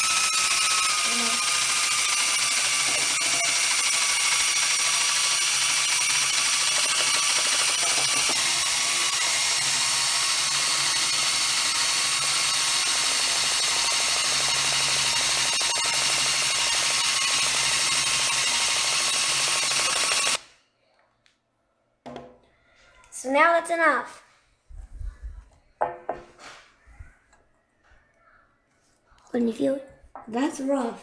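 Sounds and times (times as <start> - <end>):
power drill whining on glass: 0.0 - 20.5.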